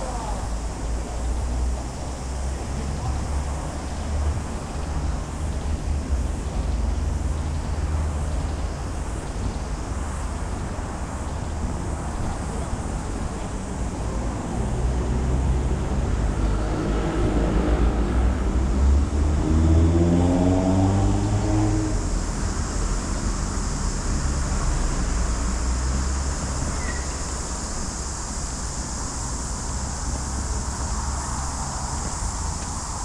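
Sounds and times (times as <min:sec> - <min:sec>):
low rumble of traffic: 0:00.0 - 0:33.0
vehicle driving by: 0:14.7 - 0:27.1.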